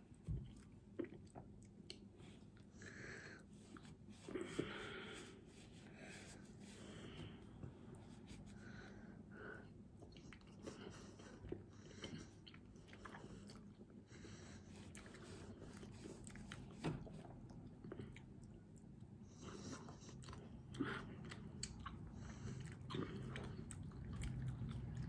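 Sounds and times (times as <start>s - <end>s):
person chewing food: 0.1s - 2.8s, 9.6s - 25.0s.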